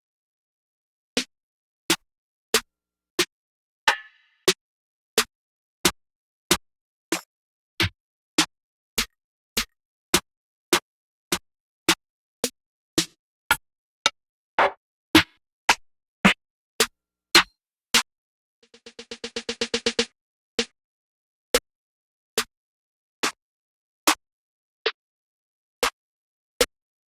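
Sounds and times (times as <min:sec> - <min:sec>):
fast drum roll: 0:18.8 - 0:20.1.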